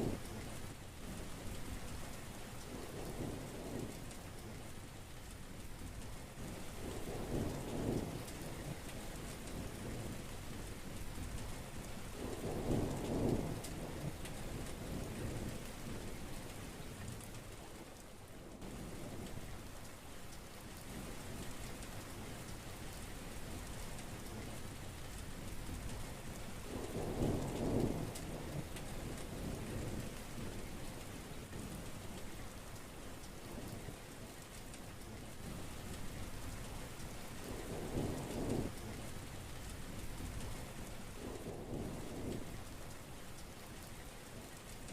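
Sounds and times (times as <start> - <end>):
heavy rain falling: 0.0 - 44.9
thunder rumbling: 6.4 - 10.6, 12.2 - 16.2, 26.6 - 32.4, 35.5 - 42.9.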